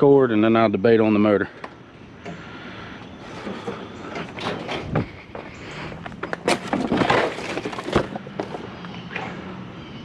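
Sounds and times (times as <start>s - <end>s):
metal scraping and banging: 3.3s - 8.6s.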